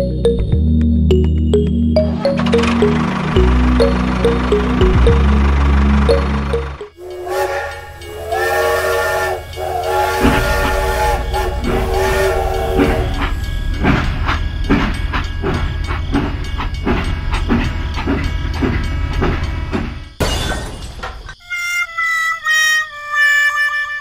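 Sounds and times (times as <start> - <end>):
melodic music: 0.0 - 8.7
steam train chugging: 2.2 - 20.2
steam train whistle: 7.0 - 13.5.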